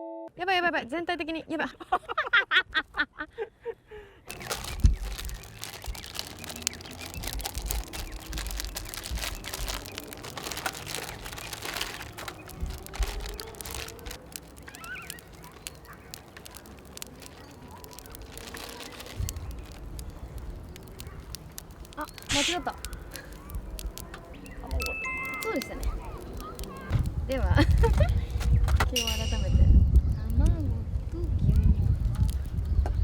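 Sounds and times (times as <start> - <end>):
clicks and crackles: 4.3 - 33.0
wind rumble on microphone: 4.3 - 33.0
bird call: 14.7 - 16.1.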